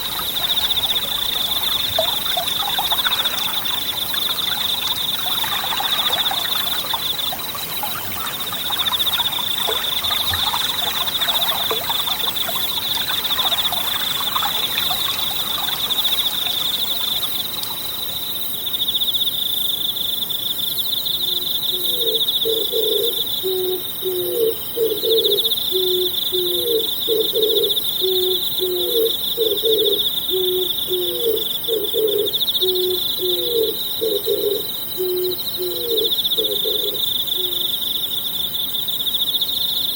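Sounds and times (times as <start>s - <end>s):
stream babbling: 0.0s - 18.4s
insects trilling: 0.0s - 39.9s.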